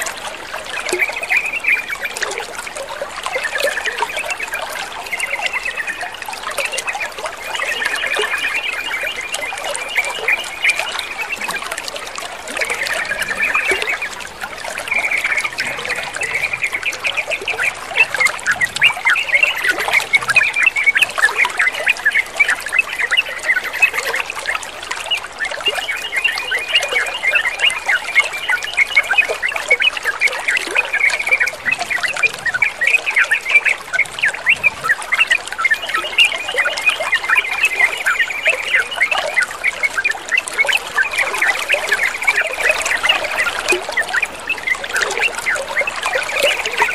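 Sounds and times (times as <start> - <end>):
trickling water: 0.0 - 46.9.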